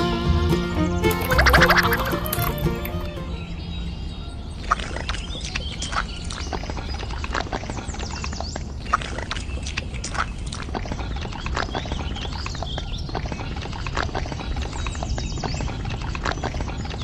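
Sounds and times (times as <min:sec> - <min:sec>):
short high chirps: 0:01.0 - 0:03.6.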